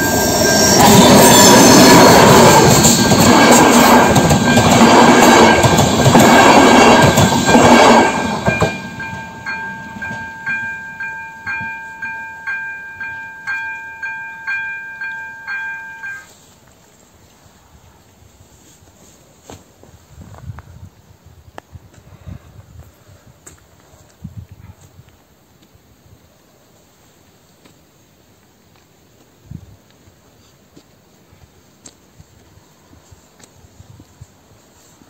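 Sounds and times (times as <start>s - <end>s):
crossing bell ringing: 0.0s - 16.3s
train rumbling past: 0.0s - 16.5s.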